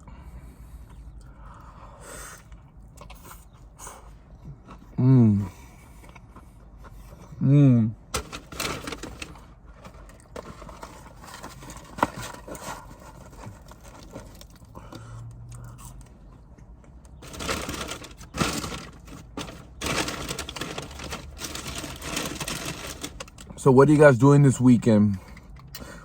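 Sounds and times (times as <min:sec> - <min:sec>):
chewing and crunching: 0:00.8 - 0:07.4, 0:09.2 - 0:23.6
rustling: 0:17.2 - 0:23.4.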